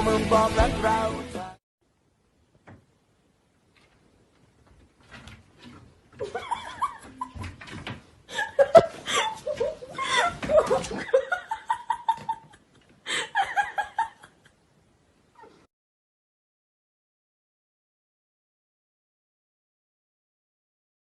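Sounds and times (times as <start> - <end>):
people laughing: 8.3 - 14.5.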